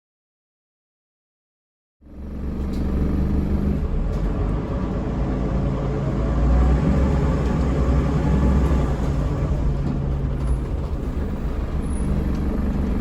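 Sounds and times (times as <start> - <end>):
diesel bus engine rumbling: 2.0 - 13.0.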